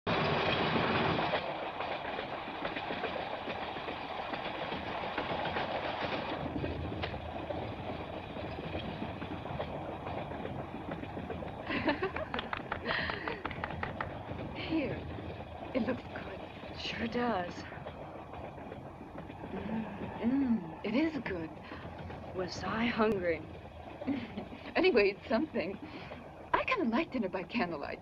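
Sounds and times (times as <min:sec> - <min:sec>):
train rumbling on rails: 0:00.0 - 0:28.0
sharp clacks: 0:00.2 - 0:20.2.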